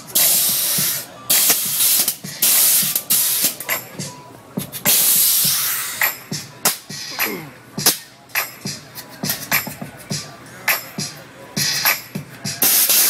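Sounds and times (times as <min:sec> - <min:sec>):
pressurized air hissing bursts: 0:00.2 - 0:03.6, 0:04.9 - 0:06.1.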